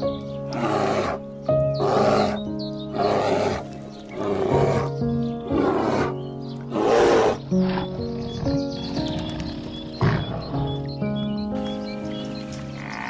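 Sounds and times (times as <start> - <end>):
background music with held notes: 0.0 - 13.0
bears growling: 0.5 - 8.5.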